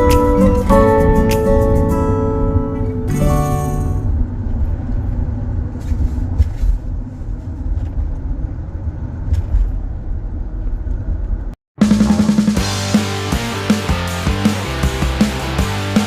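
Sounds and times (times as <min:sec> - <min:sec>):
vehicle engine and road rumble: 0:00.0 - 0:11.6.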